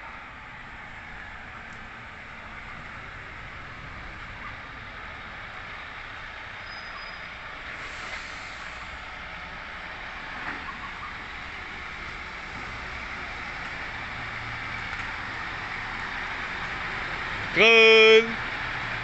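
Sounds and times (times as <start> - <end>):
garbage truck running: 0.0 - 19.0
brief hiss: 7.8 - 8.9.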